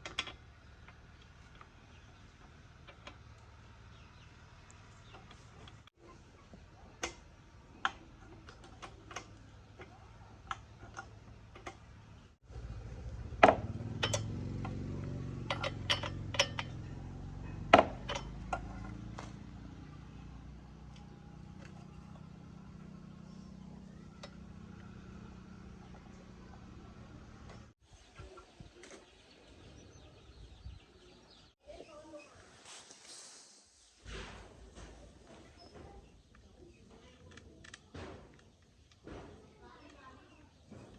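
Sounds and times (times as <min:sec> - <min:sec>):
metallic clinks and taps: 0:14.0 - 0:14.8, 0:15.5 - 0:17.0.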